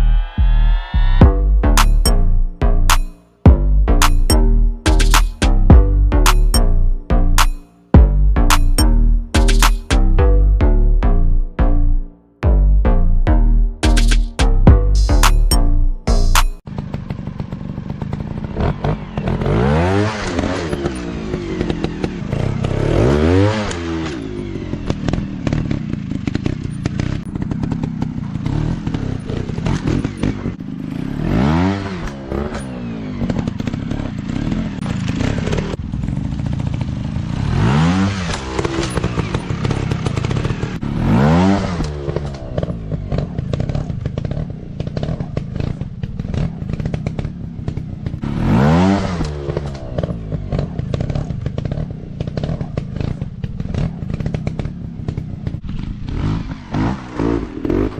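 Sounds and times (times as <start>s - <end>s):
dirt bike engines revving: 16.0s - 57.9s.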